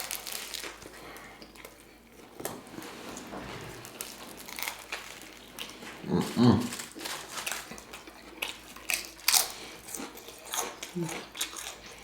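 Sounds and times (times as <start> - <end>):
clicks and rustles of food: 0.0 - 12.0
person chewing: 4.1 - 12.0.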